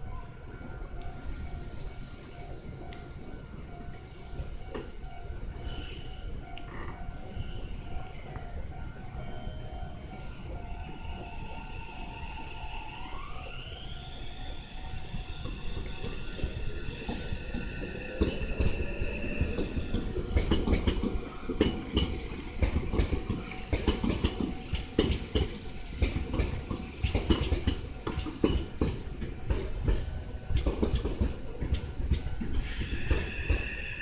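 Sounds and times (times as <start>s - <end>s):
wheel clacks over rail joints: 17.0s - 33.8s.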